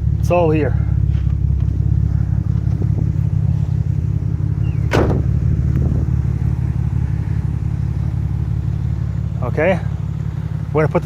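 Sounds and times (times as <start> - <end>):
car engine idling: 0.0 - 11.0
sharp knock: 4.9 - 5.2.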